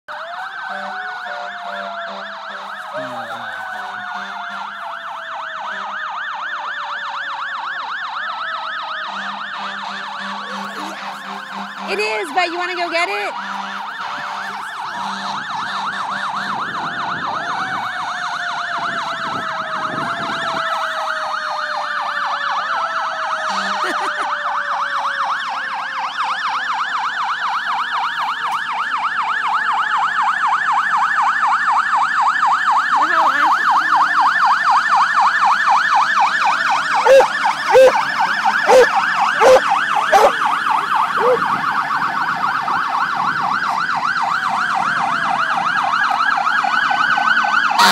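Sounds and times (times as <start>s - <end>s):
siren yelping warble: 0.1s - 7.2s, 8.3s - 21.9s, 36.0s - 45.9s
siren tone falling slowly: 37.0s - 40.6s.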